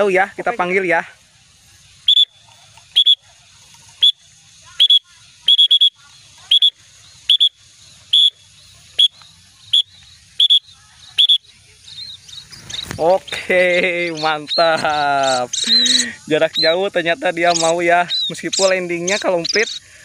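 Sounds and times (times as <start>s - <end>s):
whistle short high toots: 2.0s - 3.2s, 4.8s - 8.4s, 9.0s - 11.5s.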